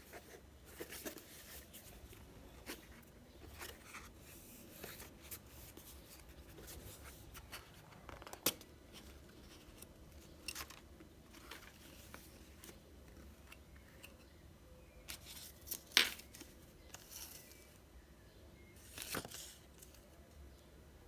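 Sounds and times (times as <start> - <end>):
cardboard and plastic rustling: 0.0 - 13.4.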